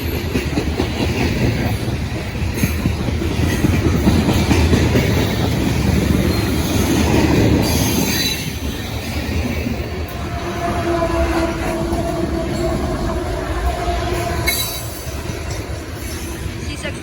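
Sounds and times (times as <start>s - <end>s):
train cars rumbling: 0.0s - 17.0s
wheels clattering over rails: 0.0s - 17.0s
high wheel squeal: 10.1s - 16.5s.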